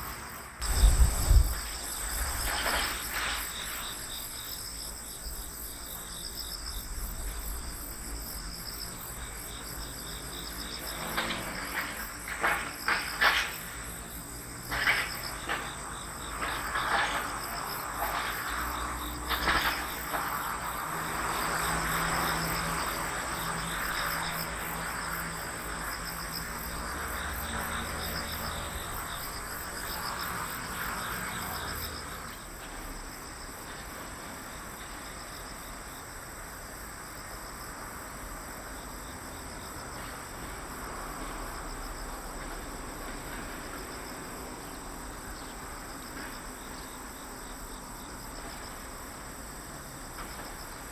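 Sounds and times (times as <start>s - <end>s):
insects chirping in trills: 0.0s - 50.9s.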